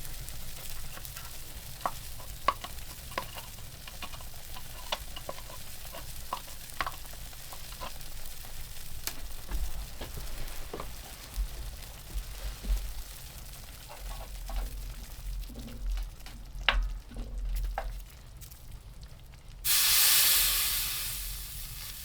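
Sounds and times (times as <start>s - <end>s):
food sizzling in a frying pan: 0.0s - 22.0s
dull low knocks: 9.2s - 13.1s.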